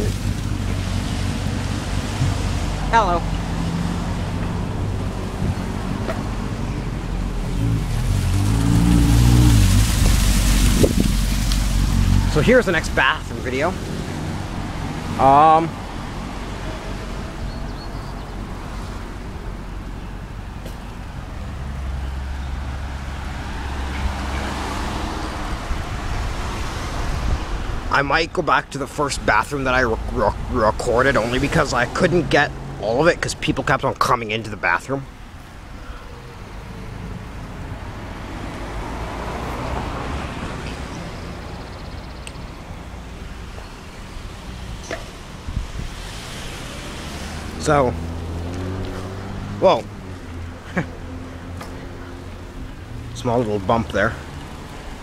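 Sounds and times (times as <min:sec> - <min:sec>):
wind rumble on microphone: 0:00.0 - 0:15.2, 0:15.8 - 0:28.0, 0:43.6 - 0:47.5
road traffic noise: 0:00.0 - 0:55.0
vehicle engine approaching: 0:00.0 - 0:55.0.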